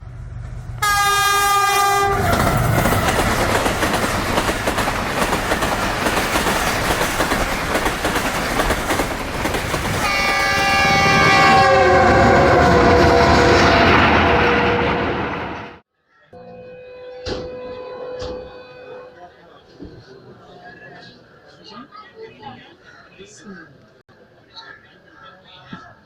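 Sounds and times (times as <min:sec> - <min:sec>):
train rumbling over rails: 0:00.0 - 0:15.8
train horn: 0:00.8 - 0:03.2, 0:10.0 - 0:15.7, 0:16.4 - 0:19.4.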